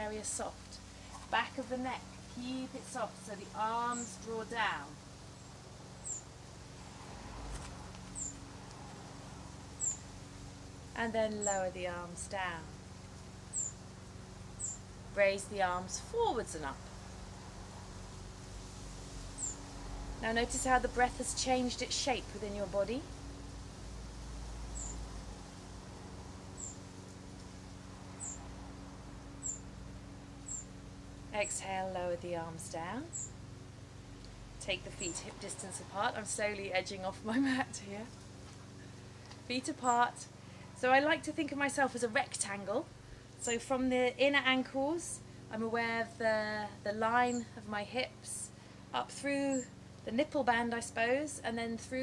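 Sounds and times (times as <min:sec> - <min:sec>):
faint background hum: 0:00.0 - 0:52.0
small bird chirping: 0:03.8 - 0:04.4, 0:05.3 - 0:06.3, 0:08.0 - 0:08.5, 0:09.8 - 0:10.1, 0:11.4 - 0:11.7, 0:13.5 - 0:13.8, 0:14.6 - 0:14.9, 0:19.4 - 0:19.7, 0:24.7 - 0:25.0, 0:26.6 - 0:26.8, 0:28.2 - 0:28.4, 0:29.4 - 0:29.7, 0:30.4 - 0:30.8, 0:33.1 - 0:33.4.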